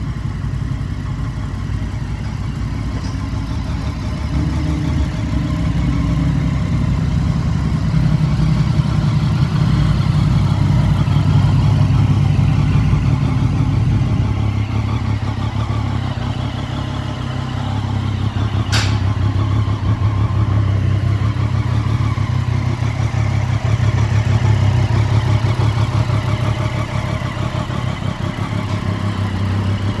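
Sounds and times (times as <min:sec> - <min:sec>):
motorcycle engine idling: 0:00.0 - 0:30.0
sharp click: 0:18.6 - 0:19.2.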